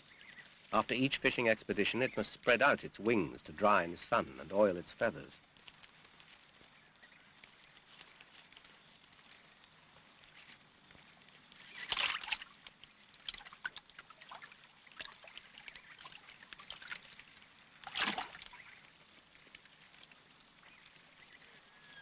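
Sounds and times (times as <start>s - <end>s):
water dripping: 0.1s - 21.9s
water splashing: 11.7s - 18.9s.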